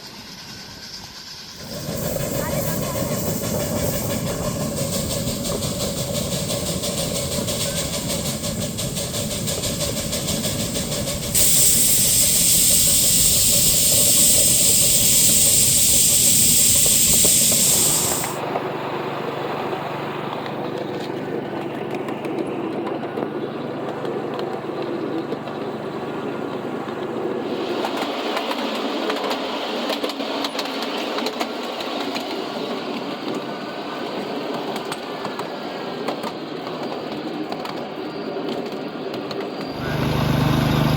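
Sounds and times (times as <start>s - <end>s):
loud steady hiss: 0.0s - 18.5s, 39.7s - 40.9s
miniature train running: 0.0s - 40.9s.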